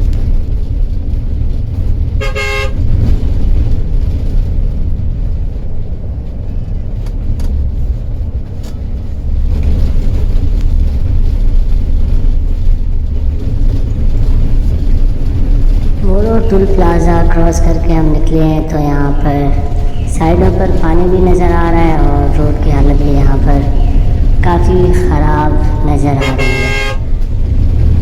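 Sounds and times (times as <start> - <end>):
coach rumbling on highway: 0.0 - 28.0
horn blast: 2.2 - 3.0, 25.7 - 27.4.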